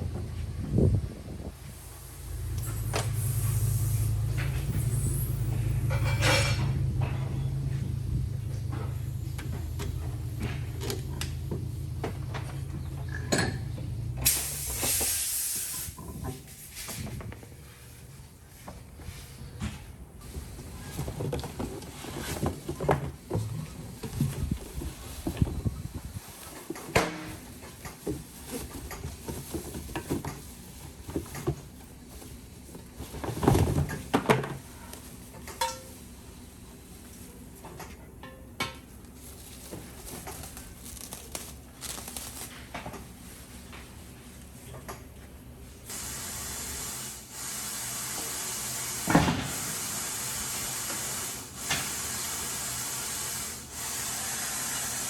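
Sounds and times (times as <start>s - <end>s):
steady low hum: 0.0s - 14.4s
compressed air hissing: 1.7s - 5.6s, 14.2s - 16.0s, 45.9s - 55.0s.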